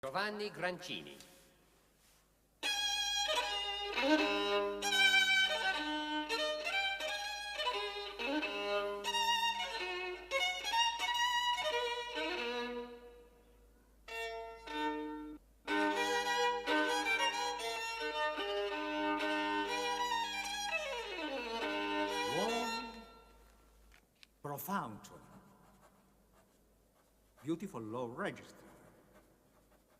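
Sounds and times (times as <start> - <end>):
solo violin: 2.6 - 13.4, 14.0 - 23.5.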